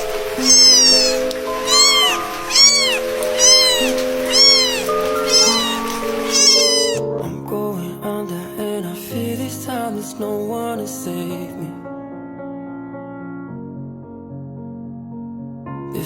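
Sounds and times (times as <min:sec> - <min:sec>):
kitten mewing: 0:00.4 - 0:07.0.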